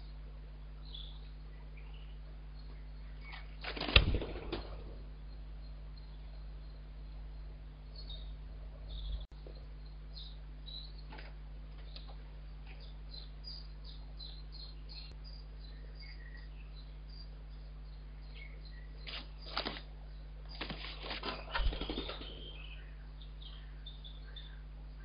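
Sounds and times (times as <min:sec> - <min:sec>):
low electrical hum: 0:00.0 - 0:25.0
rustling and scratching in nest: 0:20.5 - 0:22.0.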